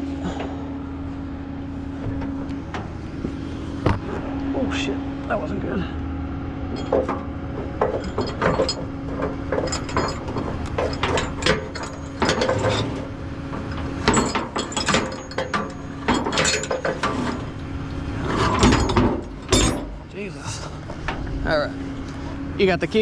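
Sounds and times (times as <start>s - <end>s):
steady low hum: 0.0s - 23.0s
metal clanks: 6.7s - 17.6s, 18.2s - 21.3s.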